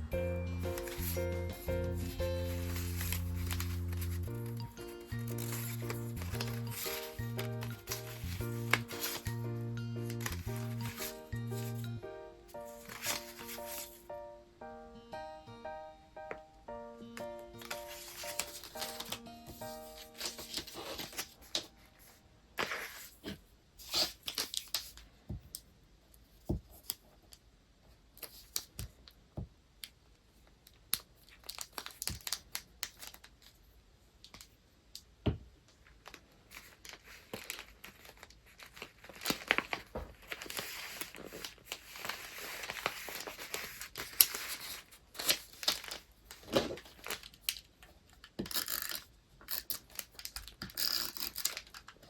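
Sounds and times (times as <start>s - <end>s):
paper crinkling and rustling: 0.7s - 11.9s, 12.5s - 14.1s, 17.5s - 25.1s, 30.9s - 34.6s, 35.8s - 52.0s
paper tearing: 0.8s - 9.4s, 12.6s - 14.0s, 17.6s - 21.7s, 23.8s - 24.9s, 36.5s - 47.2s, 48.5s - 51.9s.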